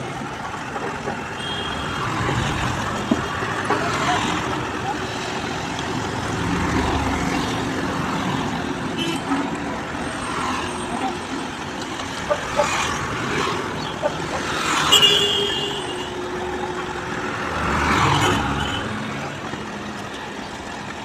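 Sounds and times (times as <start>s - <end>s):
diesel machinery engines rumbling: 0.0s - 21.0s.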